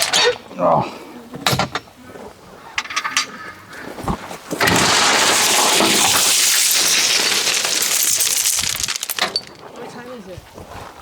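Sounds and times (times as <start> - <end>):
gravel pouring into steel trailer: 4.6 - 9.6.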